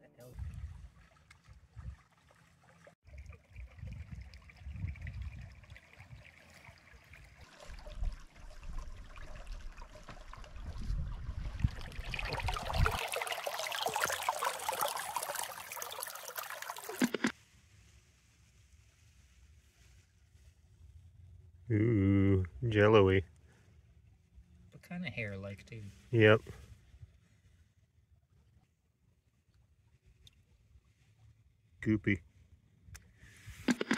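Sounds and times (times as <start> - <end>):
wind buffeting microphone: 0.4 - 2.0, 3.6 - 6.3, 10.2 - 13.0
stream running over rocks: 0.4 - 17.4.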